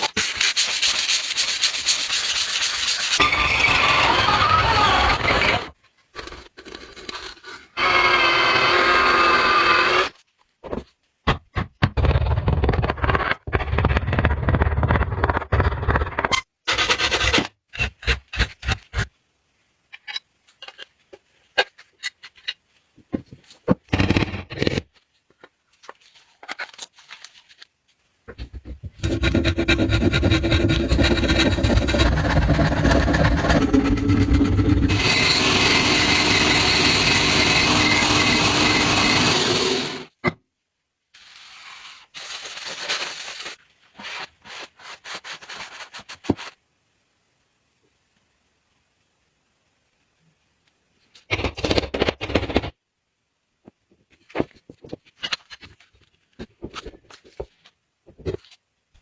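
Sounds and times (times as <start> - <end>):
power tool grinding knife blade: 29.0 - 40.1.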